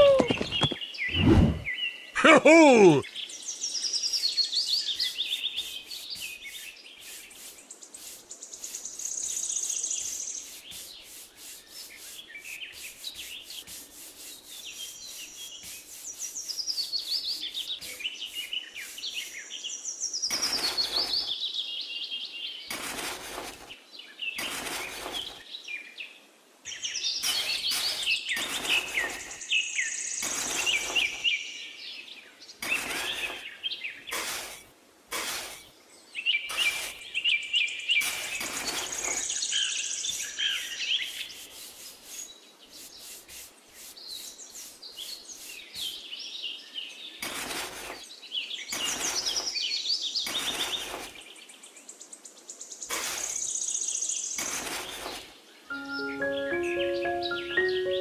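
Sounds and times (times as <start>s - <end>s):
birds singing and trilling: 0.0s - 2.2s, 3.0s - 34.6s, 35.5s - 58.0s
scraping on sand and plastic: 4.7s - 19.5s, 20.2s - 21.4s, 22.7s - 23.8s, 24.4s - 25.4s, 27.2s - 29.6s, 30.2s - 31.4s, 32.6s - 35.8s, 36.5s - 37.2s, 37.9s - 46.0s, 47.2s - 51.3s, 52.9s - 53.5s, 54.4s - 55.3s.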